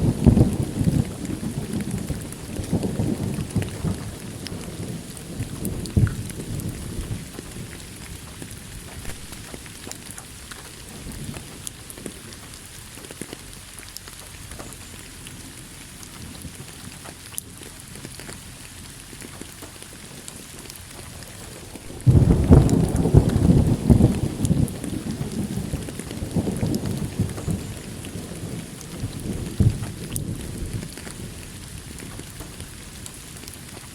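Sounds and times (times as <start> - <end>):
thunder rumble: 0.0 - 13.4, 20.8 - 33.8
steady rain with drop taps: 0.0 - 33.9.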